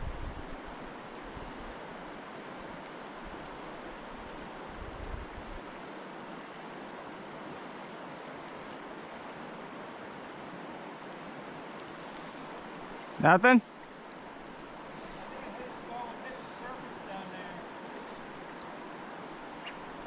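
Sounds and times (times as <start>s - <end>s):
wind on microphone: 0.0s - 1.5s, 4.7s - 5.7s
river water rushing: 0.0s - 20.0s.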